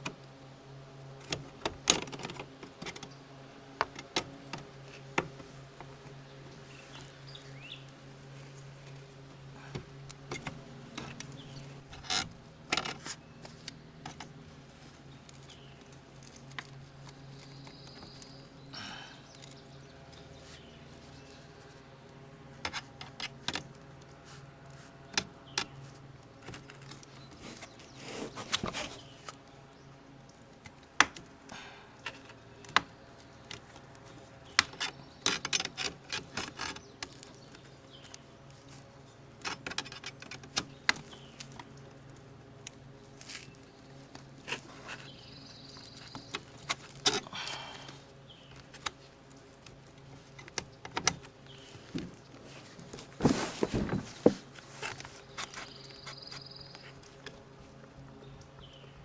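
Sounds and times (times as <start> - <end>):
low steady hum: 0.0 - 59.0
hand scraper scraping roof: 27.3 - 29.1, 52.5 - 56.4.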